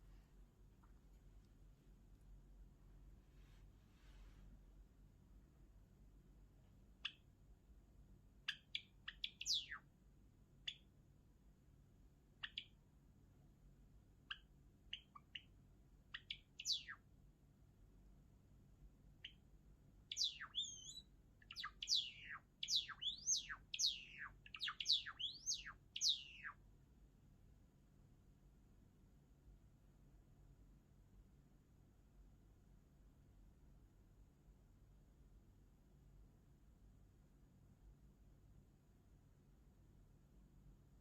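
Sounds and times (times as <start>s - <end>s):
sparrow singing: 7.0s - 7.3s, 8.4s - 9.9s, 10.6s - 10.9s, 12.4s - 12.8s, 14.3s - 17.0s, 20.1s - 26.6s.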